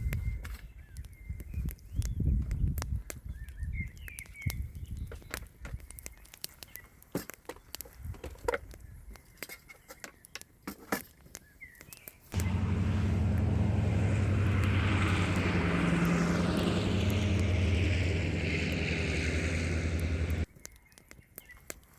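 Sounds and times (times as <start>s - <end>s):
loud steady rushing noise: 12.4s - 20.5s
low hum: 12.4s - 20.5s.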